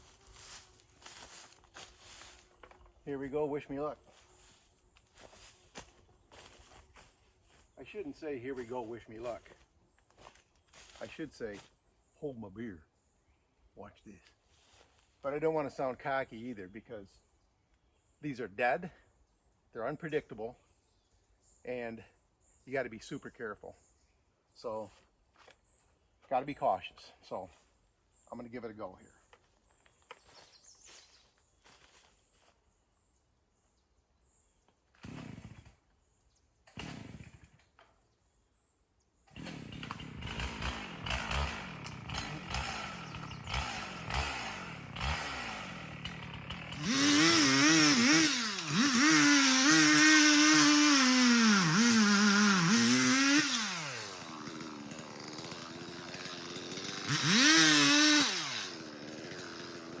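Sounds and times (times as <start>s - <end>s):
chainsaw running: 0.0s - 9.6s, 10.2s - 11.7s, 35.0s - 35.9s, 36.7s - 37.9s, 39.3s - 60.0s
chainsaw starter cord pulls: 35.0s - 35.8s, 36.7s - 37.9s, 39.3s - 60.0s.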